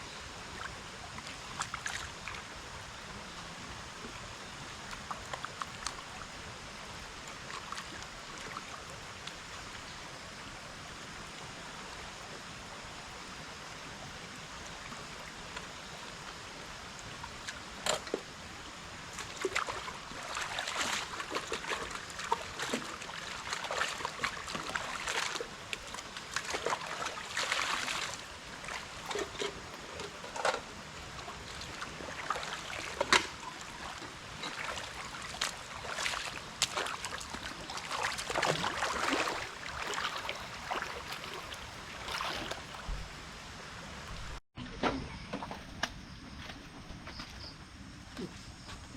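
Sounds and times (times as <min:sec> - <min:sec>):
water trickling in a stream: 0:00.0 - 0:44.4
splashes and knocks in water: 0:17.4 - 0:18.3, 0:19.1 - 0:43.4.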